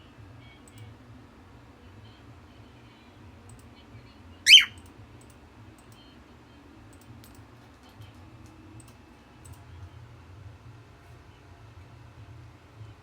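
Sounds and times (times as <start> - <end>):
cockatiel shrill chirp: 4.5 - 4.8.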